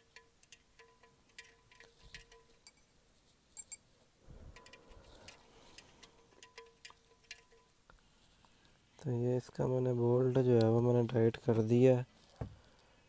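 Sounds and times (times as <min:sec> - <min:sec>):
wrench clicking metallically: 0:00.0 - 0:02.9, 0:04.6 - 0:07.7.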